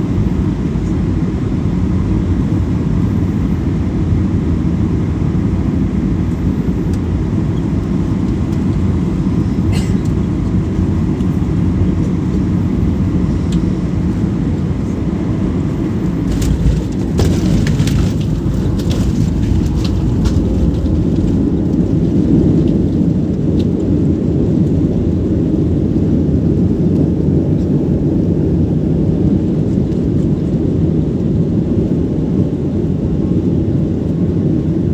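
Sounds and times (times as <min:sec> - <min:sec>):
airliner low rumble: 0:00.0 - 0:34.9.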